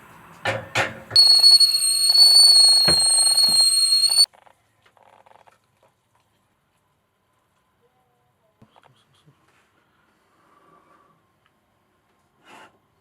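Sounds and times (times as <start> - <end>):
high-pitched electronic alarm tone: 1.2 - 4.3.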